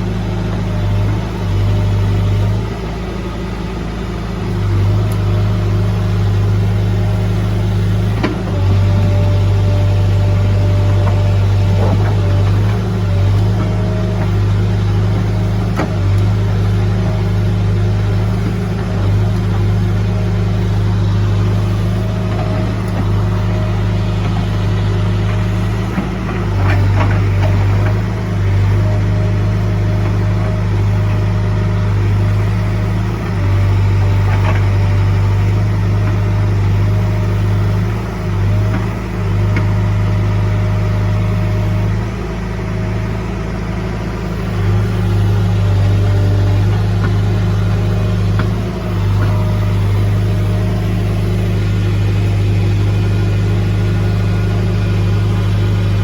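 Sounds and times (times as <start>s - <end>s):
diesel engine running steadily: 0.0s - 56.0s.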